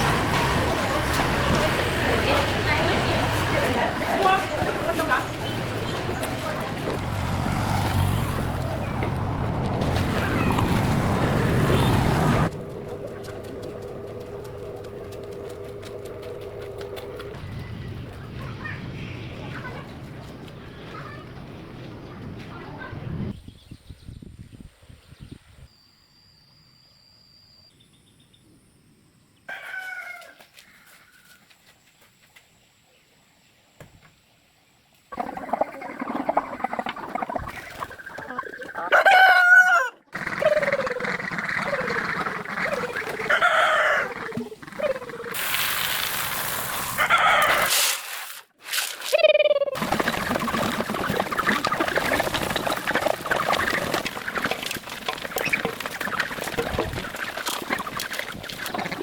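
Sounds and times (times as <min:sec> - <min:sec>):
background clamour: 0:00.0 - 0:23.3, 0:40.2 - 0:45.5, 0:49.8 - 0:59.0
roosters crowing: 0:29.5 - 0:30.9, 0:35.1 - 0:45.5, 0:46.8 - 0:47.8, 0:49.8 - 0:59.0
chickens clucking: 0:35.1 - 0:45.6, 0:49.2 - 0:59.0.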